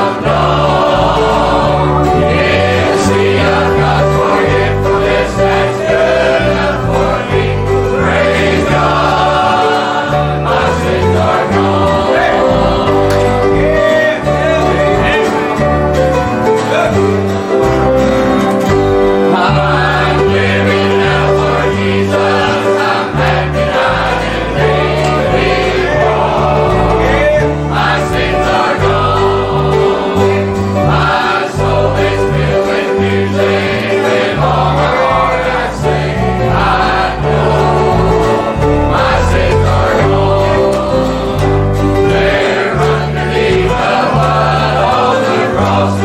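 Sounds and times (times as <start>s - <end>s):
choir singing gospel: 0.0s - 46.0s
instrumental accompaniment: 0.0s - 46.0s
bass line: 34.4s - 44.8s.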